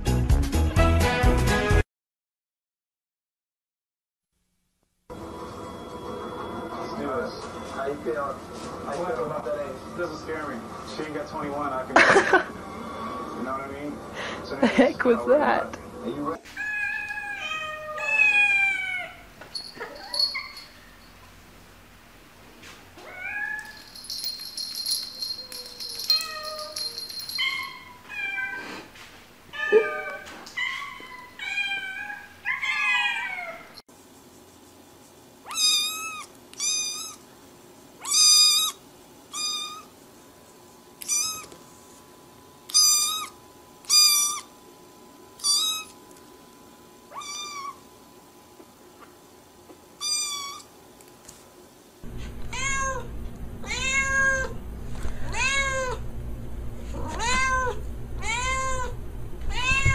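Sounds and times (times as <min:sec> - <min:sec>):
cats meowing: 0:16.5 - 0:20.6, 0:29.5 - 0:33.8, 0:35.5 - 0:37.2, 0:41.0 - 0:41.5, 0:45.4 - 0:46.0, 0:47.1 - 0:47.8, 0:50.0 - 0:50.7, 0:52.2 - 0:54.6, 0:55.2 - 0:56.0, 0:56.9 - 0:59.9
kitten high-pitched meows: 0:16.6 - 0:19.2, 0:29.6 - 0:33.7, 0:35.5 - 0:37.2, 0:38.0 - 0:39.9, 0:41.0 - 0:41.5, 0:42.7 - 0:44.5, 0:45.4 - 0:46.0, 0:47.1 - 0:47.8, 0:50.0 - 0:50.7, 0:52.5 - 0:54.5, 0:55.3 - 0:56.0, 0:57.0 - 0:58.9, 0:59.5 - 0:59.9
steady low hum: 0:52.0 - 0:59.9
low-pitched cat meowing: 0:52.4 - 0:54.5, 0:56.9 - 0:59.9.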